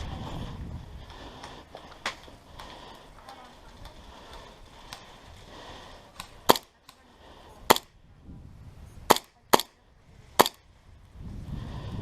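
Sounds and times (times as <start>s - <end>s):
airsoft gun shots: 6.5s - 6.7s, 7.7s - 7.9s, 9.1s - 9.7s, 10.4s - 10.6s.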